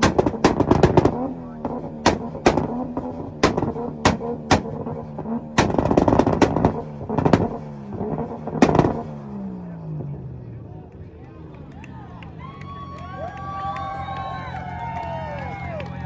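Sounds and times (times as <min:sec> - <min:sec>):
car engine revving on limiter: 0:00.0 - 0:10.3
exhaust bangs: 0:00.0 - 0:10.8.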